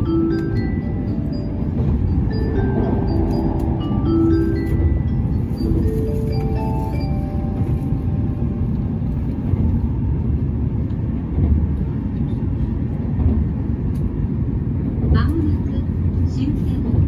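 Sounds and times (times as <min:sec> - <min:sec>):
chime-like melody: 0:00.0 - 0:08.7
train low rumble: 0:00.0 - 0:17.0.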